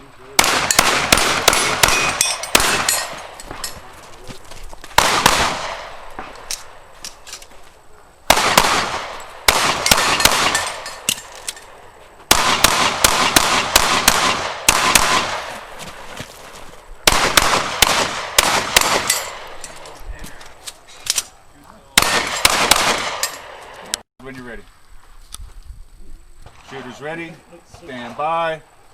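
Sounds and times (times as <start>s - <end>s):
pistol gunfire with echo: 0.4s - 3.6s, 5.0s - 6.4s, 8.3s - 10.9s, 12.3s - 15.6s, 17.0s - 19.6s, 22.0s - 23.6s.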